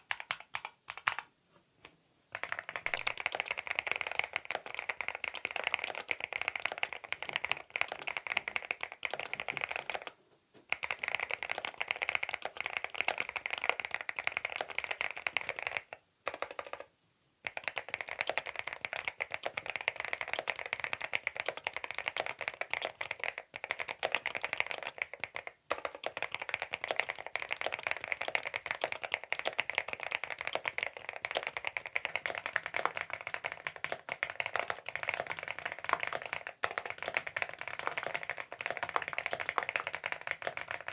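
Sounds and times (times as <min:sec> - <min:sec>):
fast mechanical keyboard typing: 0:02.9 - 0:03.2.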